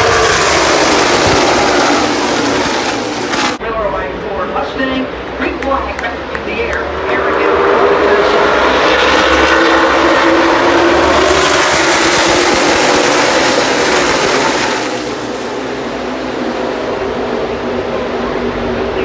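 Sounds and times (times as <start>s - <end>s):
stock car engines racing past: 0.0s - 19.0s.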